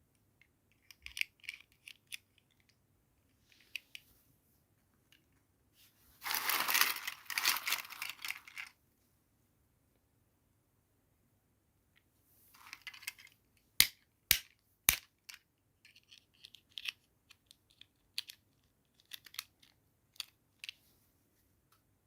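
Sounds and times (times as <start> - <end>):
packaging rustling: 6.2 - 8.7.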